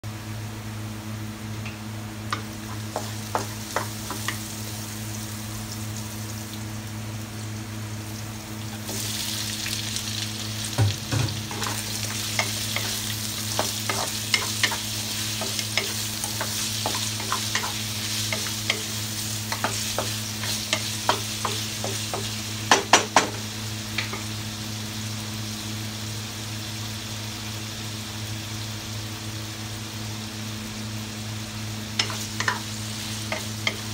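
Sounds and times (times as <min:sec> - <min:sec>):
food sizzling in a wok: 0:00.1 - 0:33.9
wooden spatula scraping a wok: 0:11.5 - 0:22.3.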